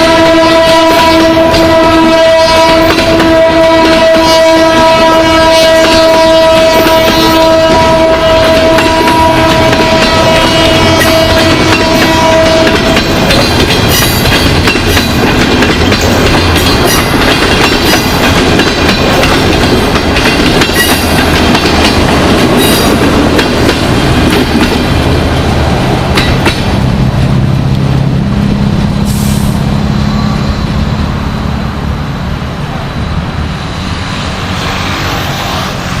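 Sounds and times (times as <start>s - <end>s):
train horn: 0.0s - 14.0s, 29.0s - 31.6s
train coaches rumbling: 0.0s - 36.0s
train wheels clacking over rails: 0.6s - 5.0s, 5.7s - 29.6s.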